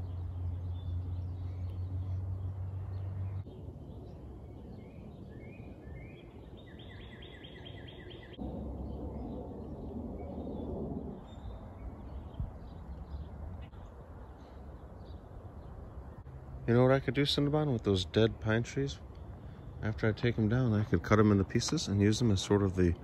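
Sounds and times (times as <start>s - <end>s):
birds chirping: 0.0s - 23.0s
low rushing noise: 8.3s - 23.0s.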